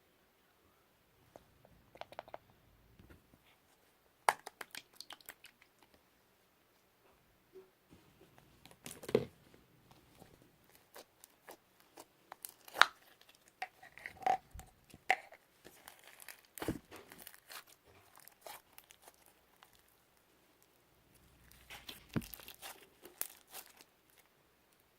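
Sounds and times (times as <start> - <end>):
slime popping and crackling: 10.7 - 13.5, 21.5 - 23.8.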